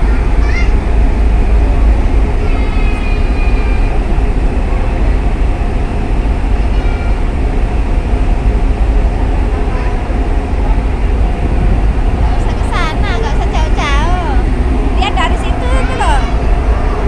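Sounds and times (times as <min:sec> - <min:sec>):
ferry engines rumbling: 0:00.0 - 0:17.0
high voice: 0:12.2 - 0:16.4.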